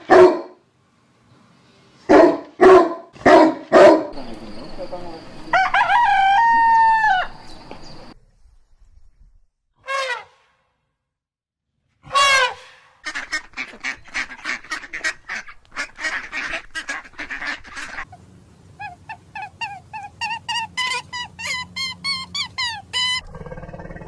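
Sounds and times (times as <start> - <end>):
birds calling: 4.2 - 8.2, 12.3 - 24.0.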